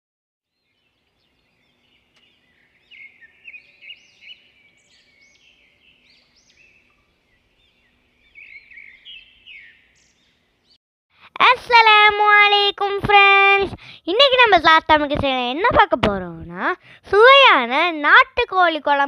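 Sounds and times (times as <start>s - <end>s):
small birds chirping: 0.5s - 10.8s.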